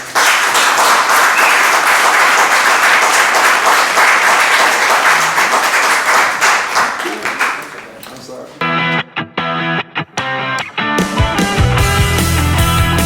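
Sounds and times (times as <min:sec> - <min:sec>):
audience applause: 0:00.0 - 0:08.6.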